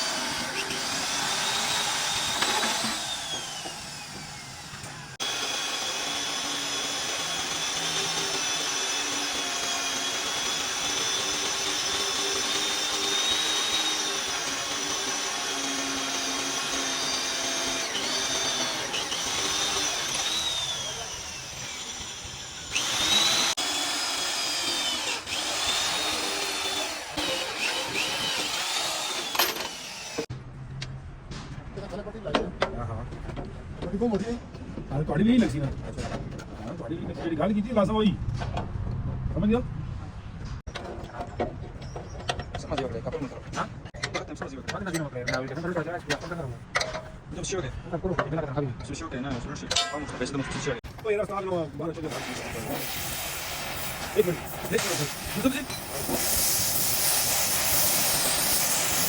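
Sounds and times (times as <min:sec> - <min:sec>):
electric power tool whining: 0:00.0 - 0:30.3, 0:52.1 - 0:59.0.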